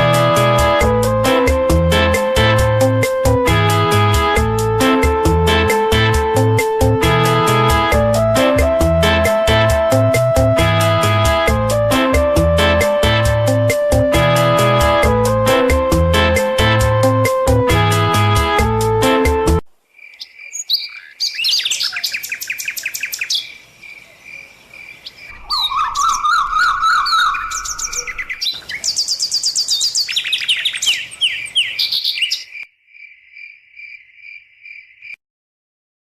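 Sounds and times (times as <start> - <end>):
lovebirds chirping and chattering: 20.1 - 32.6.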